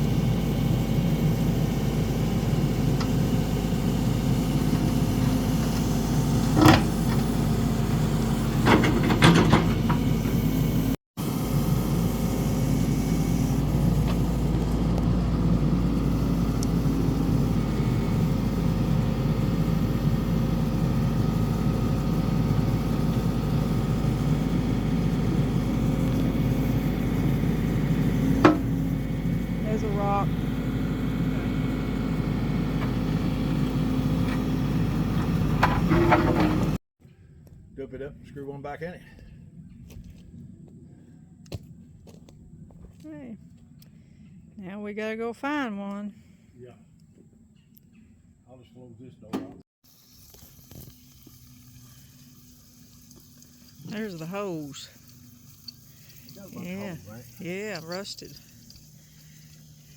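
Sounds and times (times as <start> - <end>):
excavator engine running: 0.0 - 36.8, 50.0 - 59.9.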